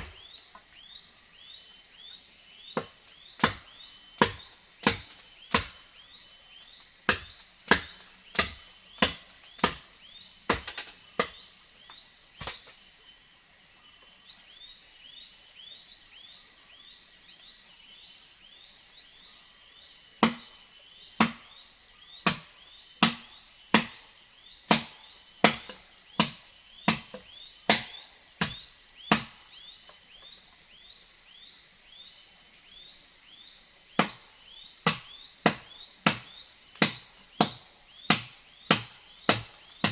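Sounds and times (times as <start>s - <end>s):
wood chopping with a blade: 0.0s - 0.7s, 2.7s - 6.1s, 6.8s - 12.8s, 20.2s - 20.6s, 21.2s - 21.5s, 22.2s - 29.5s, 33.9s - 39.9s
high insect drone: 0.0s - 39.9s.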